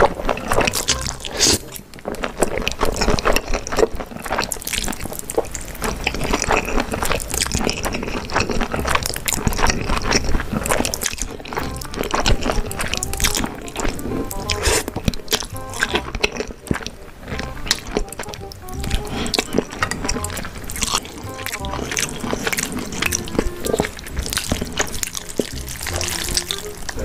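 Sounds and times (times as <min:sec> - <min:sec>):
wet slurping and chewing noodles: 0:00.0 - 0:27.0
background music: 0:00.4 - 0:01.9, 0:08.8 - 0:27.0.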